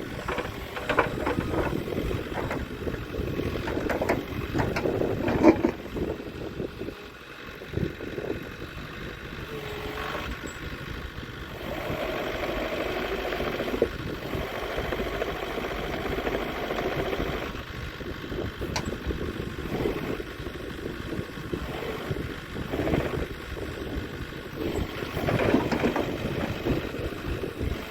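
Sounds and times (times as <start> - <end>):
excavator diesel engine running: 0.0 - 27.9
click: 18.7 - 19.0.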